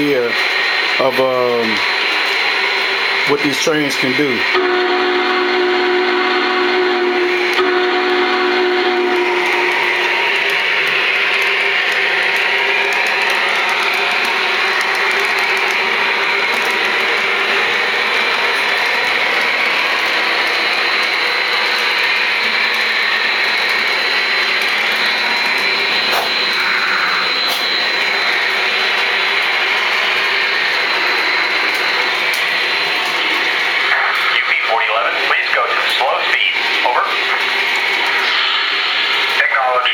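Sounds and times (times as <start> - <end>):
model trains rumbling on track: 0.0 - 38.4
whine of motors and gears: 0.0 - 39.9.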